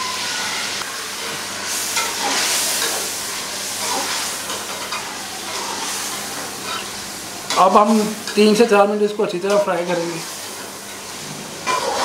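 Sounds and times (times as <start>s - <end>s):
food sizzling in a pan: 0.0s - 12.0s
metal ladle scraping pan: 6.6s - 7.0s.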